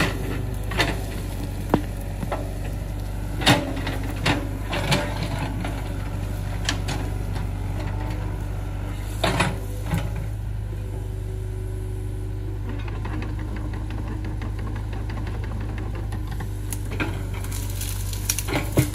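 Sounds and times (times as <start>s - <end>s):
excavator engine running: 0.0s - 18.9s.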